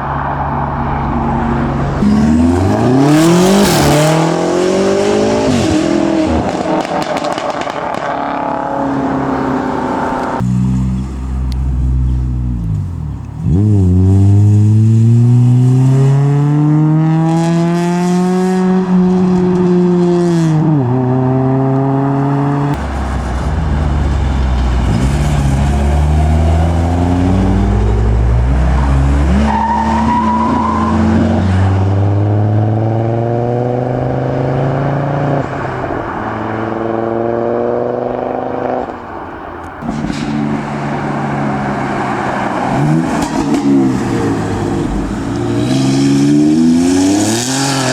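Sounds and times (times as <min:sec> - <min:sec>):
cars accelerating hard: 0:00.0 - 0:47.9.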